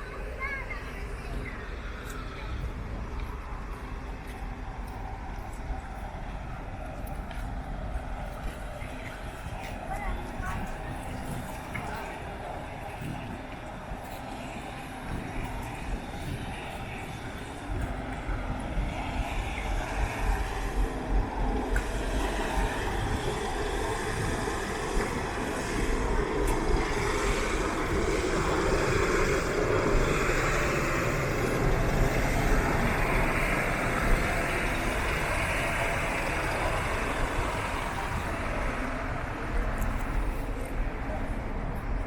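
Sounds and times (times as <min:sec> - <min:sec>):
road noise: 0:00.0 - 0:42.0
vehicle engine rumble: 0:00.0 - 0:42.0.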